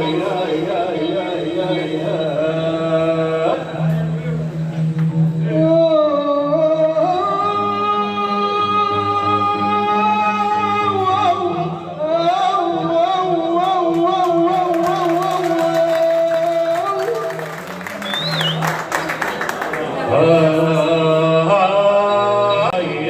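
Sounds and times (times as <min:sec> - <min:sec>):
person singing: 0:05.1 - 0:18.2.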